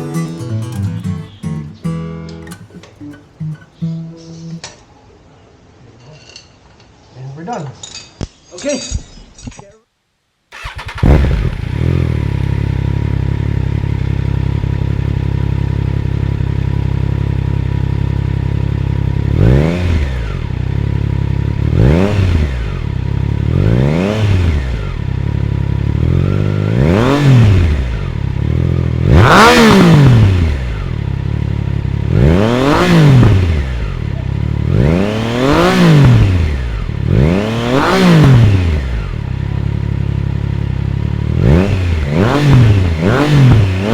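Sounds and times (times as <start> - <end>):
motorcycle engine idling and revving: 10.6 - 43.9.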